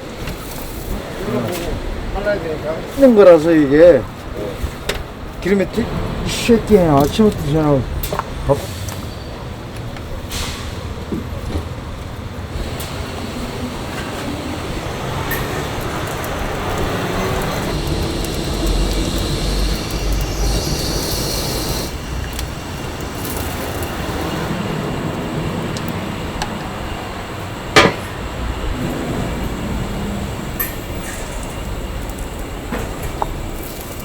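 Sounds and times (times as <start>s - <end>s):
mechanical rumbling with clattering: 9.8s - 34.0s.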